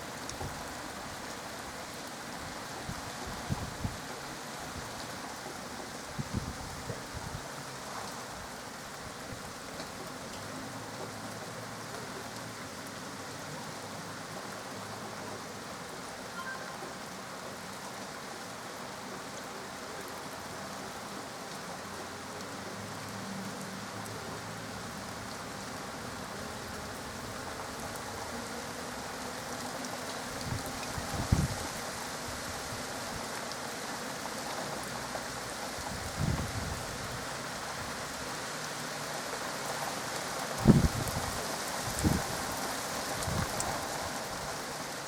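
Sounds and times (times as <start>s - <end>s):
steady rain falling: 0.0s - 45.0s.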